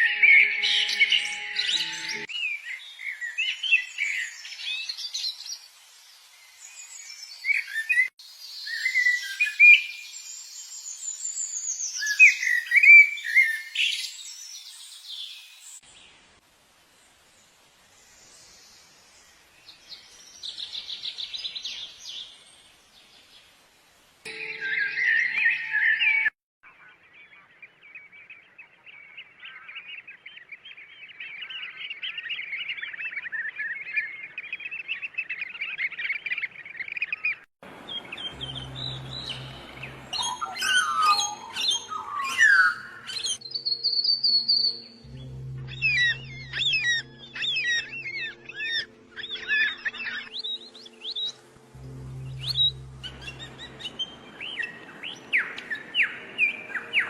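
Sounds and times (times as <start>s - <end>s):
soft background music: 0.0s - 2.3s, 24.3s - 26.3s, 37.9s - 57.0s
small birds chirping: 26.7s - 57.0s
low pulsing drone: 38.0s - 40.6s, 44.9s - 55.0s.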